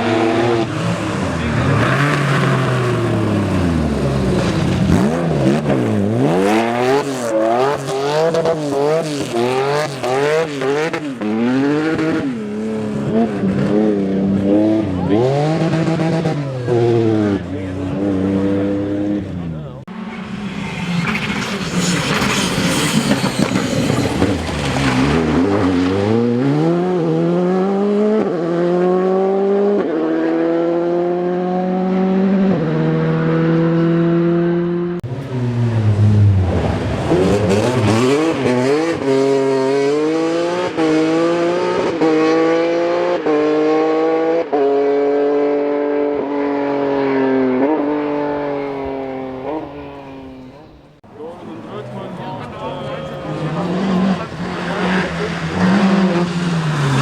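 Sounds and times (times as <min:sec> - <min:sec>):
rally car engine accelerating: 0:00.0 - 0:57.0.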